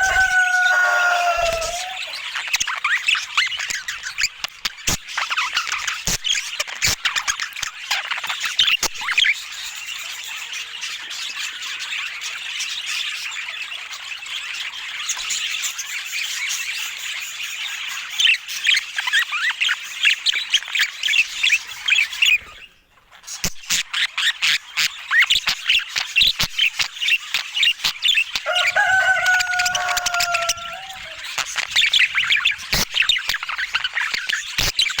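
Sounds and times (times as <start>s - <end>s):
budgerigars chattering: 0.0s - 15.7s, 23.4s - 35.0s.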